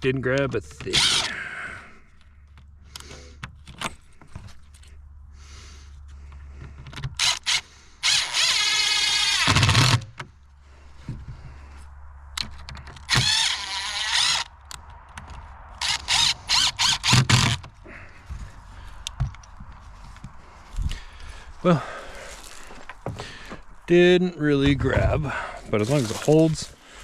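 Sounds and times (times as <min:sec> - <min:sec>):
power drill driving screw: 0:00.8 - 0:01.3, 0:07.2 - 0:10.2, 0:13.0 - 0:14.5, 0:15.8 - 0:17.6.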